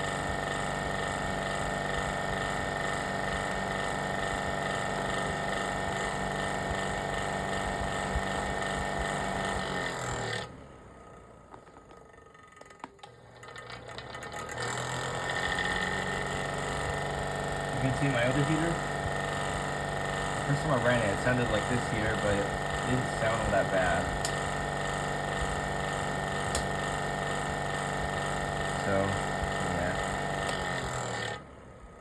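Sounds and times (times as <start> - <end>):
electric fan heater humming: 0.0 - 11.2, 13.0 - 32.0
clicks: 22.2 - 24.5, 26.4 - 27.0.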